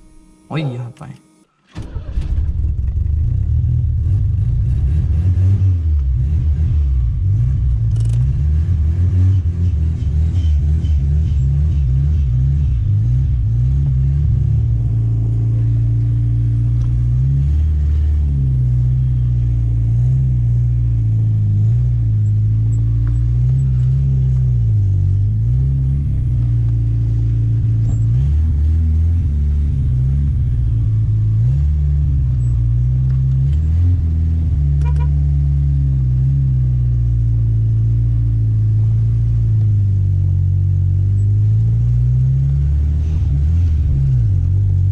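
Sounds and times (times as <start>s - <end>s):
car engine running: 0.0s - 44.9s.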